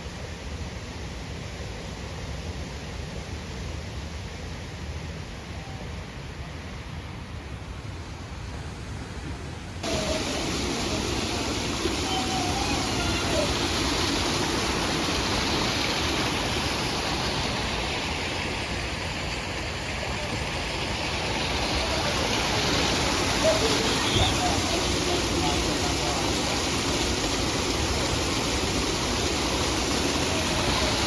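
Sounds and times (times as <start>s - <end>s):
rushing water: 0.0s - 31.0s
distant indistinct voices: 9.8s - 16.3s, 19.6s - 31.0s.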